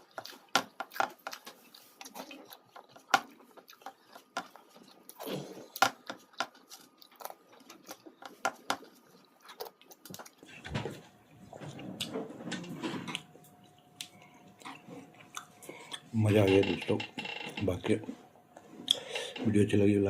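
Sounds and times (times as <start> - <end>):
mouth chewing and lip smacks: 0.0 - 10.6, 13.1 - 16.1.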